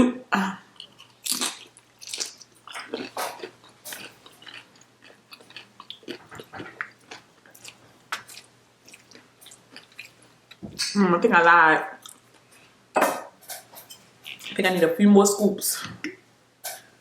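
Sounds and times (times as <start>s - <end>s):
person chewing food: 0.7s - 10.9s, 12.0s - 12.7s.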